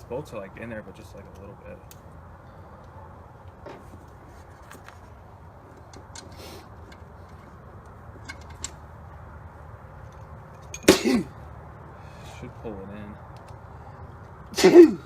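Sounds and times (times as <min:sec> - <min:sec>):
clicks of metal parts and tools: 0:05.7 - 0:08.8, 0:10.1 - 0:10.9.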